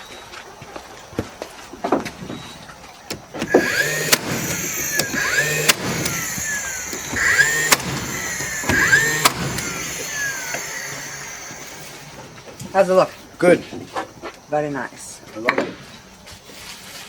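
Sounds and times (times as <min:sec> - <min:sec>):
sharp clicks and knocks: 0:03.1 - 0:12.0
power tool motor whirring: 0:03.1 - 0:12.6.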